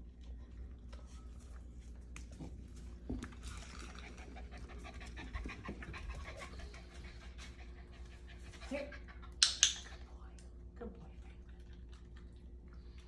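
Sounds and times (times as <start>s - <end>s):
puppy panting: 3.5s - 10.2s.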